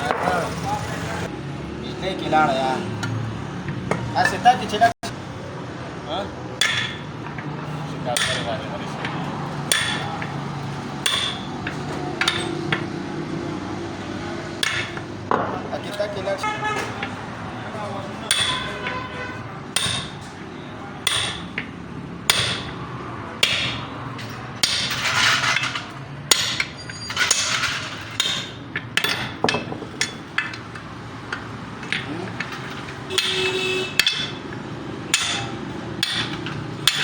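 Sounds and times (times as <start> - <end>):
metal scraping: 23.4 - 37.0.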